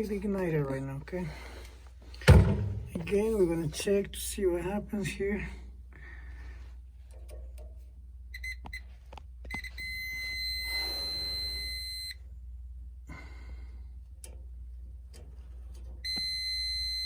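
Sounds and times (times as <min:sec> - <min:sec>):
multimeter continuity beeps: 0:08.3 - 0:08.9, 0:09.5 - 0:12.2, 0:16.0 - 0:17.0.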